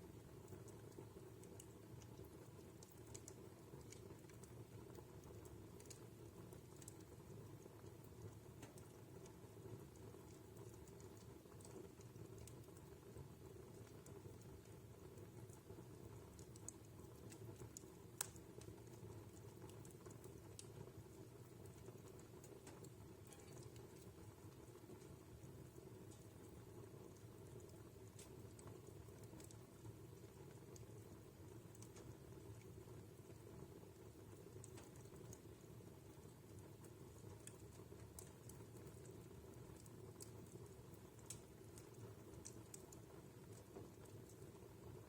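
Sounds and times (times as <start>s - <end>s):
burning logs crackling: 0.0s - 45.0s
flames rumbling: 0.2s - 45.0s.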